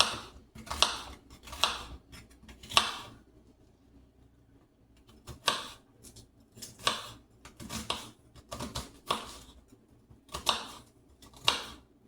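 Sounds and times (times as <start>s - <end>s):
knife chopping on cutting board: 0.0s - 3.2s, 5.1s - 9.6s, 10.3s - 11.8s.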